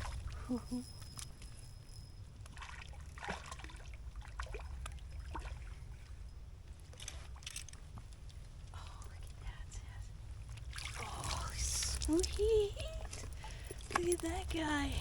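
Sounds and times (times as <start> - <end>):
water splashing and dripping: 2.4 - 6.1, 10.4 - 14.9
steady low rumble: 3.8 - 15.0.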